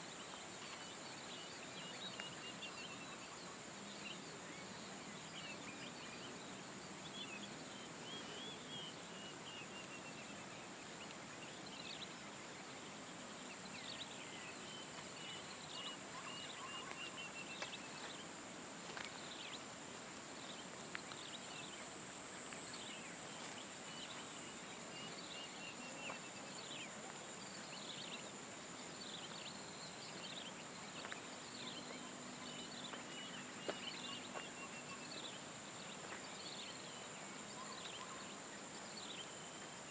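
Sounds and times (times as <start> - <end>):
birds chirping and trilling: 0.2 - 18.3, 20.4 - 39.9.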